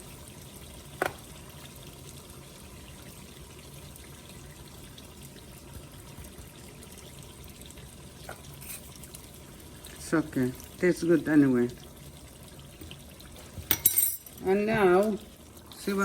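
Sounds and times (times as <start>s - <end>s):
meat sizzling in a wok: 8.0s - 11.6s.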